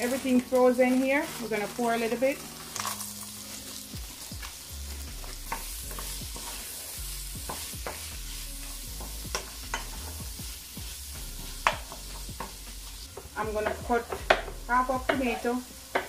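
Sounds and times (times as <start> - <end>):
wooden spoon scraping a pan: 0.0 - 3.8, 4.4 - 16.0
onions sizzling in hot oil: 0.0 - 16.0.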